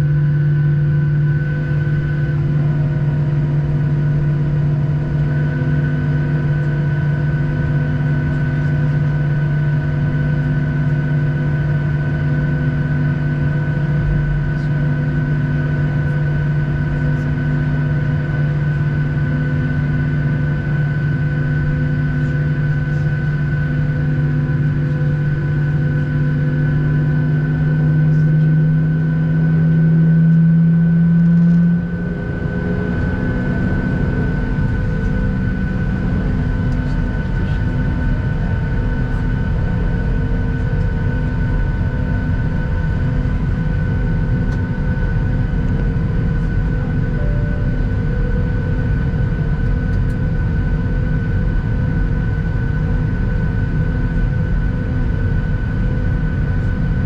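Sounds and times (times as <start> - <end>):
aircraft cabin engine drone: 0.0 - 57.0
faint pulsing: 45.0 - 50.8.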